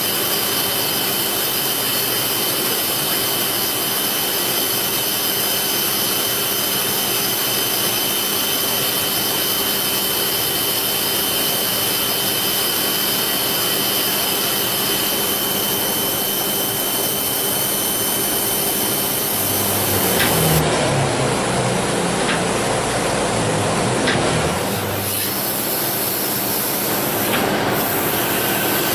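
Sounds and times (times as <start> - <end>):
lathe machine and coolant hiss: 0.0 - 20.6, 21.4 - 28.9
thin high whine: 7.8 - 20.6.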